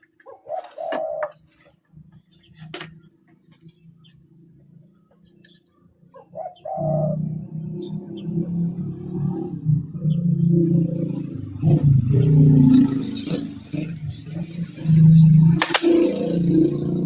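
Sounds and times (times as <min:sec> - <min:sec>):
dove cooing: 0:00.2 - 0:01.9, 0:06.1 - 0:07.6.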